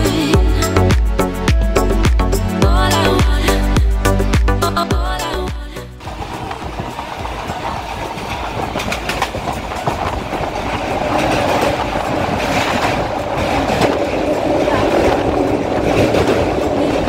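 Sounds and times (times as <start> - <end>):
wheels rolling on rail: 4.6 - 17.0
clattering over rail joints: 6.0 - 17.0.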